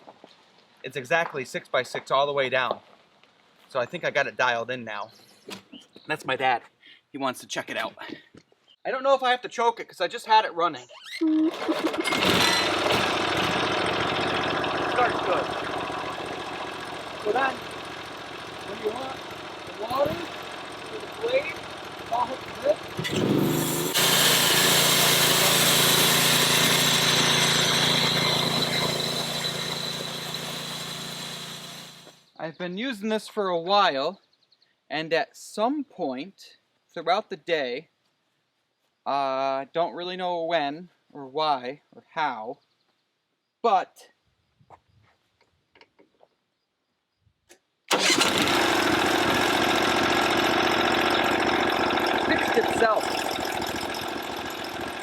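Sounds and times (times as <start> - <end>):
gas engine humming: 11.3 - 32.2, 47.9 - 55.0
band saw blade hissing: 23.1 - 32.2.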